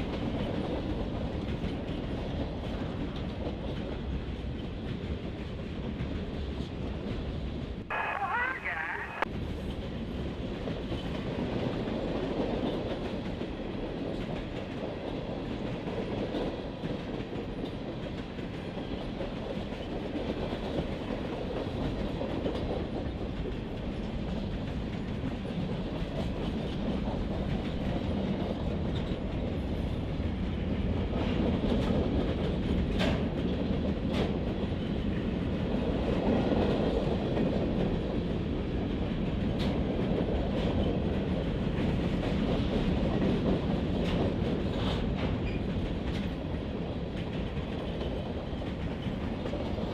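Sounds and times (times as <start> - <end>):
freight train rumbling past: 0.0 - 49.9.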